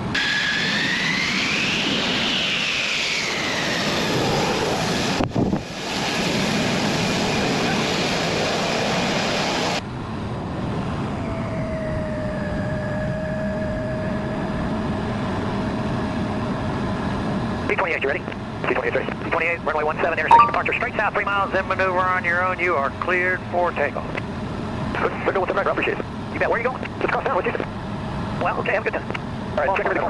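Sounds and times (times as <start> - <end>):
fighter jet engine whine: 0.0 - 17.8.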